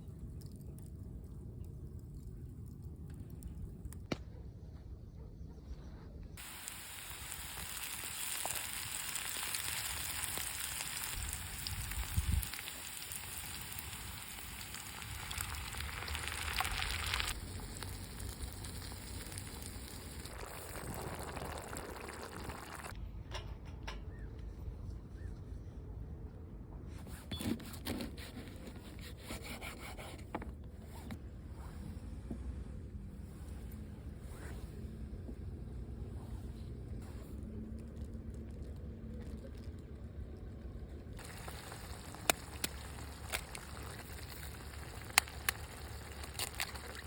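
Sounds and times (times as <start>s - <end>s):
food sizzling on barbecue: 6.4s - 22.9s, 41.2s - 47.0s.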